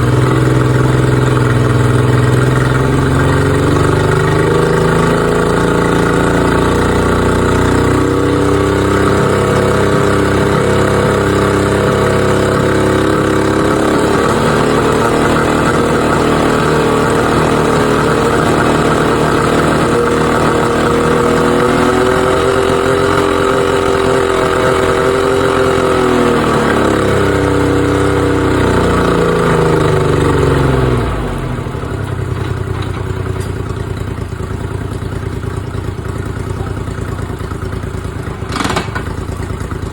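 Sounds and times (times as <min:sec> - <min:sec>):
outboard engine revving: 0:00.0 - 0:39.9.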